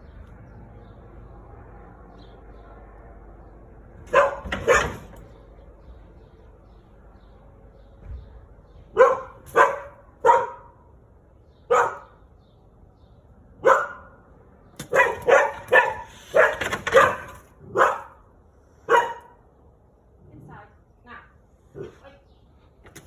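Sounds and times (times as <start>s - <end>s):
dog barking: 4.1s - 5.1s, 8.9s - 10.8s, 11.7s - 12.2s, 13.6s - 14.2s, 14.9s - 18.2s, 18.9s - 19.4s.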